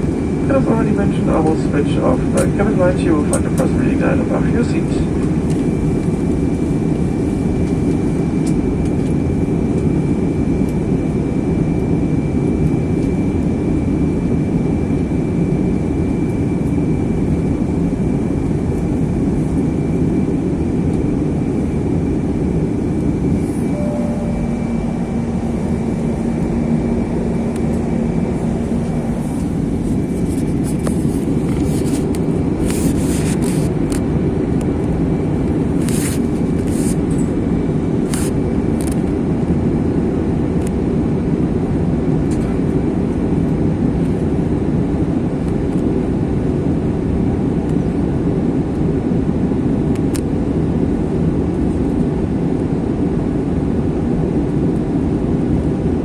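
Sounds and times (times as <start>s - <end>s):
airliner cabin engine rush: 0.0s - 56.0s
thin steady whine: 19.4s - 34.0s
low hum: 21.2s - 32.6s.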